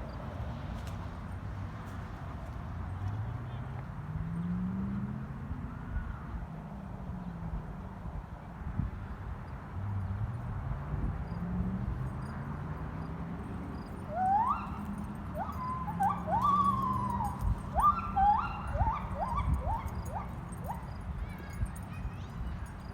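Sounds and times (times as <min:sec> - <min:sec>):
animal calls sweeping up in pitch: 0:14.1 - 0:20.8.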